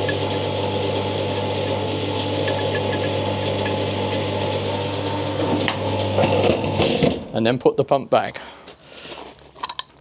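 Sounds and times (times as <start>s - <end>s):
fuel pump humming: 0.0s - 7.2s.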